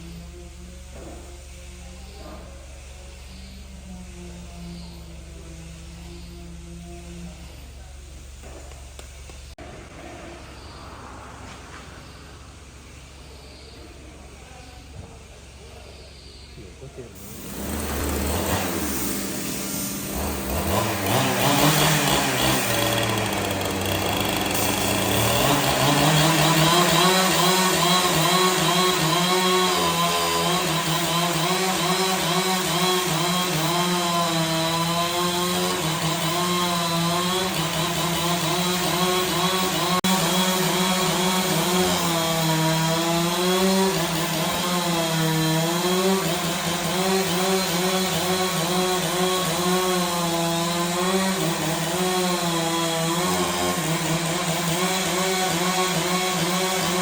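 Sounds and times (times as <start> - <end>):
engine saw cutting wood: 17.2 - 57.0.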